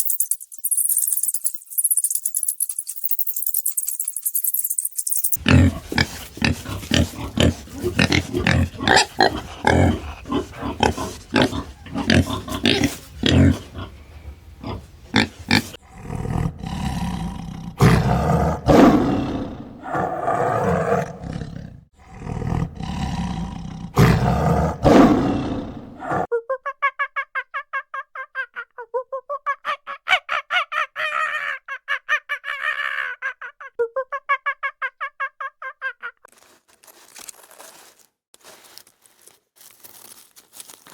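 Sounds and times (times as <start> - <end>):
farm animals calling: 5.4 - 15.8.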